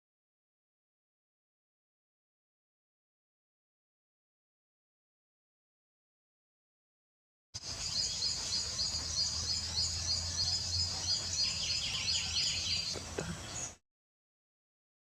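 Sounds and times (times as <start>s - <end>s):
small birds chirping: 7.6s - 13.8s
steady low hum: 7.6s - 13.8s.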